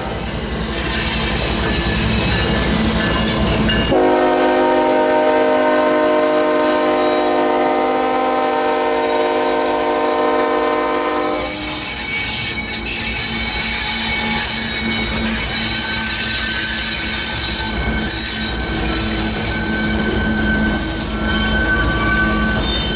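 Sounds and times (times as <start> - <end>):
rail clatter: 0.0 - 4.8
train wheel squeal: 0.0 - 22.9
locomotive air horn: 3.9 - 11.8.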